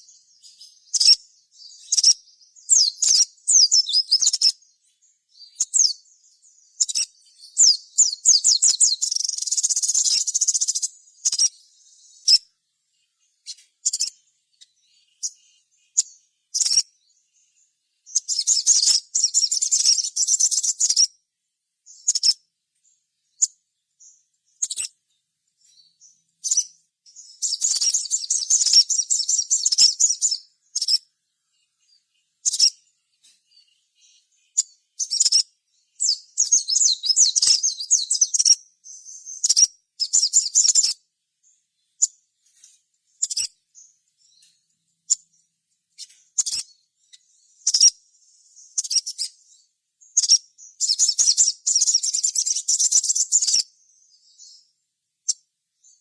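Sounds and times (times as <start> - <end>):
sharp single bird chirps: 0.0 - 4.6, 6.8 - 12.5, 13.4 - 17.2, 18.1 - 21.1, 24.5 - 25.0, 25.8 - 31.1, 31.8 - 32.9, 33.5 - 41.0, 43.2 - 45.3, 46.0 - 48.0, 48.6 - 54.6
bird rapid high chattering: 1.8 - 4.6, 6.8 - 11.6, 13.4 - 14.2, 16.0 - 16.9, 18.1 - 21.1, 22.0 - 22.4, 24.6 - 25.0, 27.4 - 31.0, 32.4 - 32.8, 36.0 - 38.6, 39.3 - 41.0, 46.0 - 46.7, 47.6 - 47.9, 50.2 - 53.6.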